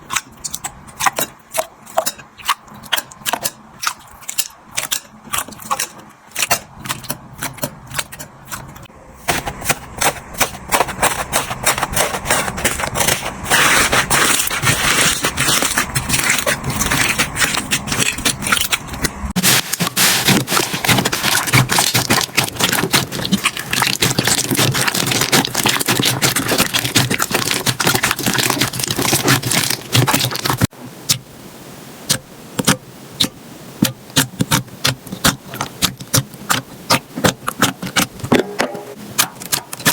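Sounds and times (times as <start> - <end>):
slime crackling and popping: 10.0 - 30.7, 32.1 - 38.5, 39.2 - 39.9.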